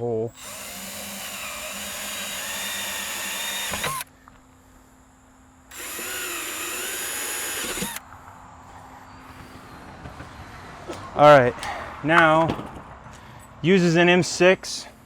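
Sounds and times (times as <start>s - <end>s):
power drill boring sheet metal: 0.3s - 4.1s, 5.7s - 8.0s.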